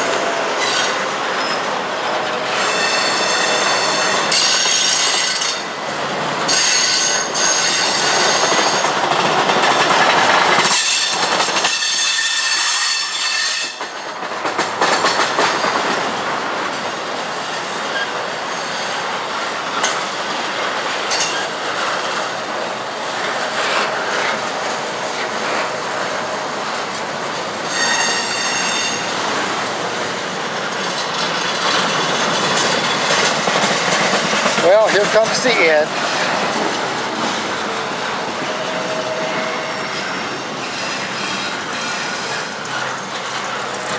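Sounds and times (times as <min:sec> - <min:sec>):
train wheels clacking over rail joints: 0:00.0 - 0:43.9
high-pitched wheel squeal: 0:02.5 - 0:05.6, 0:27.6 - 0:29.2.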